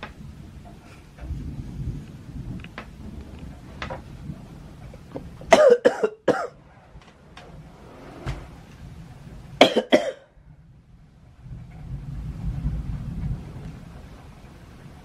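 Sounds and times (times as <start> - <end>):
steady low rumble: 0.0 - 15.0
person coughing: 5.5 - 6.6, 9.6 - 10.3.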